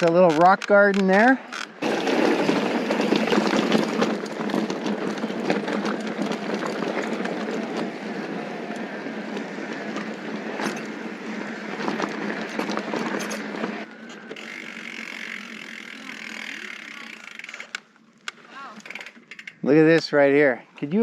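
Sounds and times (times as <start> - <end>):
bike rattling and clicking: 0.0 - 20.9
bike tyres rumbling on gravel: 1.7 - 17.4.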